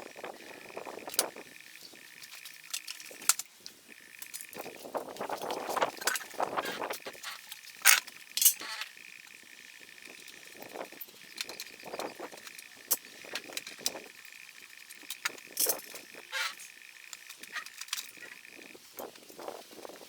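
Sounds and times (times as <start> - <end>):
metal tools clinking: 5.4 - 8.9, 10.1 - 18.3.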